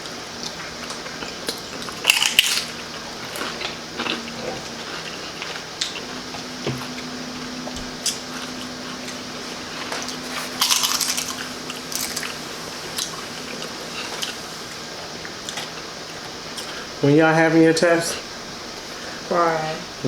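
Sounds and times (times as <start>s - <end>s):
crunching chips: 0.4s - 6.2s, 8.0s - 14.8s
wet squishy chewing: 7.9s - 15.8s.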